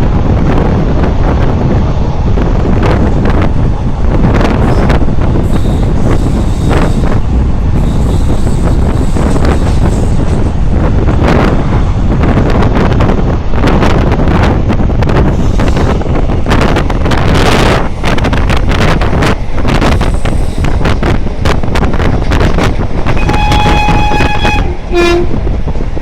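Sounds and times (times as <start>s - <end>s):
moving train rumble: 0.0s - 26.0s
wind buffeting microphone: 0.0s - 26.0s.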